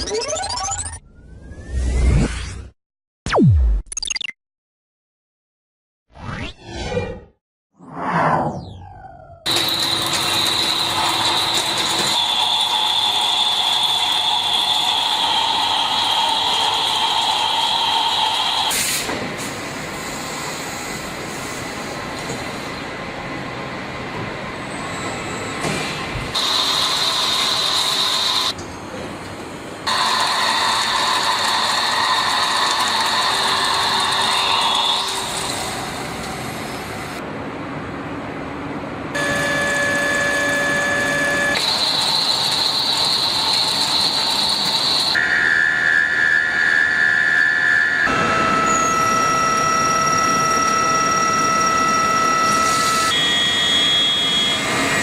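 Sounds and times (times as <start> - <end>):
high spindle whine: 9.5 - 18.8, 29.9 - 37.2, 39.2 - 55.0
machine cutting metal: 9.5 - 19.0, 26.4 - 28.6, 29.9 - 37.2, 41.5 - 45.4.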